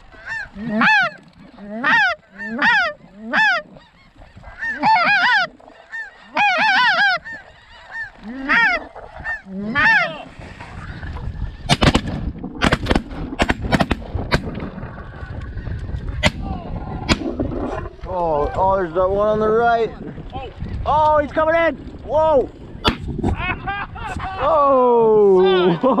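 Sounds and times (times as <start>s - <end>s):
geese honking: 0.0s - 11.7s.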